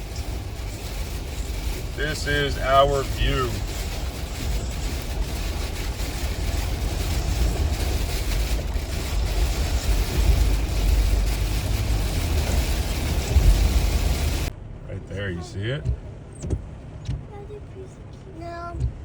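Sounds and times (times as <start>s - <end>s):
heavy rain: 0.0s - 14.5s
storm wind: 0.0s - 14.5s
wind buffeting microphone: 0.0s - 14.5s.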